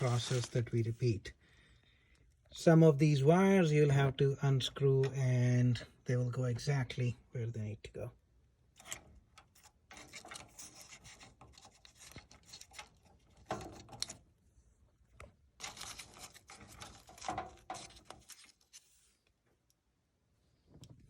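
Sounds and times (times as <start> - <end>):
hands scraping wires and connectors: 0.0 - 0.7, 8.8 - 14.3, 15.6 - 19.2.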